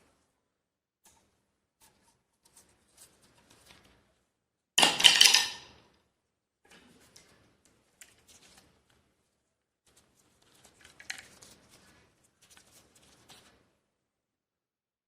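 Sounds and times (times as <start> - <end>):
loud clattering rattle: 4.8 - 5.6.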